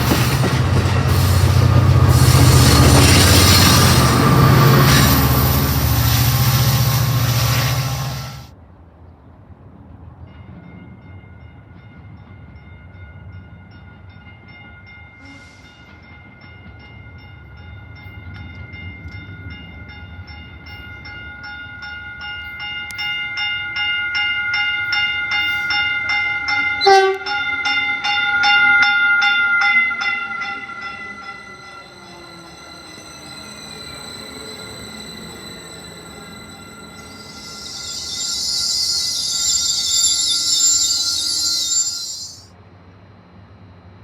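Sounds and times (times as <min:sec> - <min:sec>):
railroad crossing bell ringing: 0:00.0 - 0:08.5, 0:10.3 - 0:42.6.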